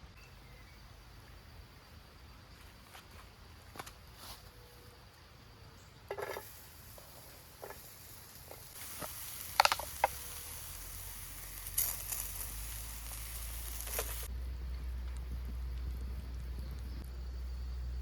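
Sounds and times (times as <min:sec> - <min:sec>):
campfire crackling and sizzling: 0:06.1 - 0:18.0.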